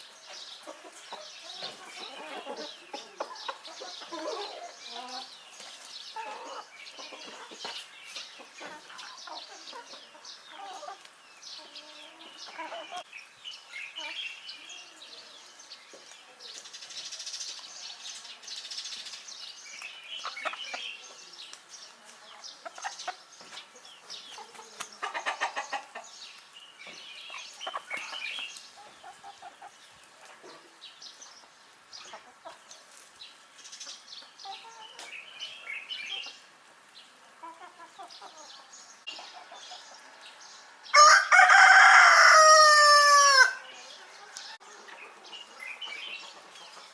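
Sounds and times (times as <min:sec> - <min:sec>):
chickens clucking: 0:00.0 - 0:13.1, 0:13.8 - 0:46.9
rooster crowing: 0:40.9 - 0:43.6.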